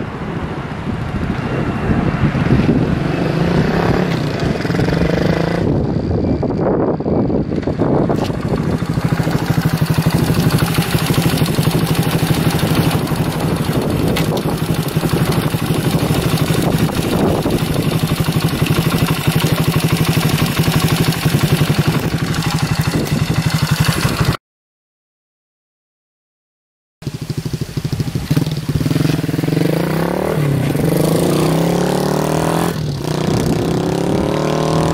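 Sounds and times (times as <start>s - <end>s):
wind noise on microphone: 0.0s - 24.4s, 27.0s - 34.9s
minibike engine running: 7.3s - 24.4s, 27.1s - 31.9s.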